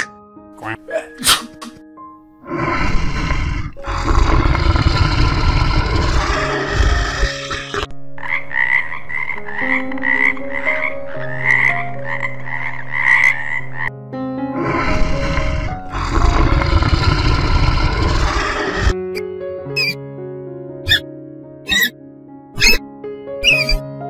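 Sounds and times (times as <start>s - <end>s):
frog croaking: 0.0s - 0.9s, 2.6s - 13.9s, 14.6s - 19.0s, 19.8s - 20.0s, 21.7s - 21.9s, 23.4s - 23.8s.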